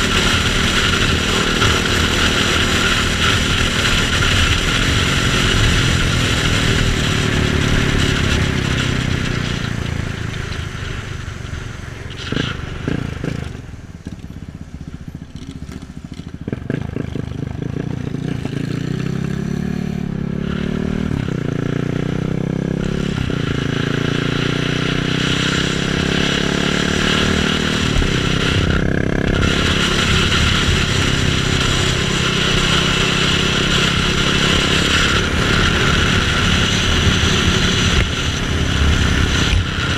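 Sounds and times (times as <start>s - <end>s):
motorcycle engine: 0.0s - 39.9s
wind rush: 22.5s - 39.9s.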